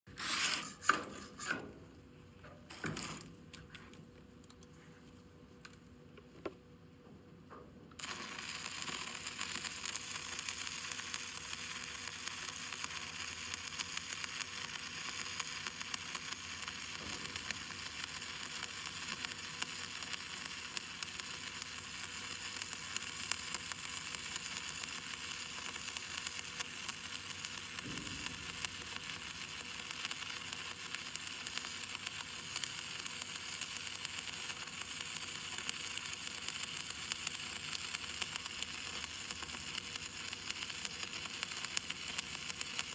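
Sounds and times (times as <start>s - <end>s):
arc welding crackling sizzle: 2.7s - 3.7s, 8.0s - 42.9s.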